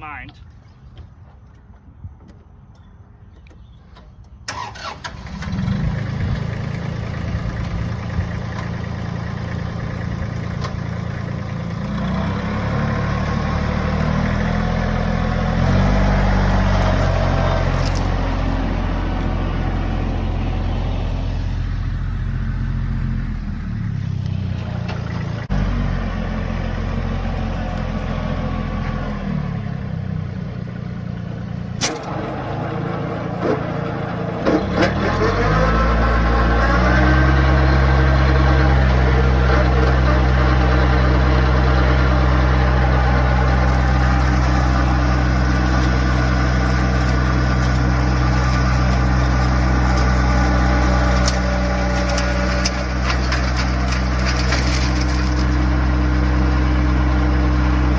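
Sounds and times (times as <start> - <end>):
tractor engine running hard: 4.5 - 57.9
flail mower chopping brush: 15.5 - 18.6, 42.9 - 57.1.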